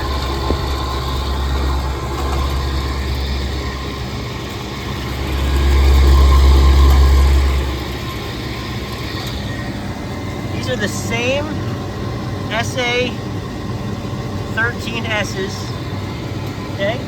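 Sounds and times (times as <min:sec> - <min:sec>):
low rumble: 0:00.0 - 0:10.8
condensing unit motor grinding: 0:00.0 - 0:17.0.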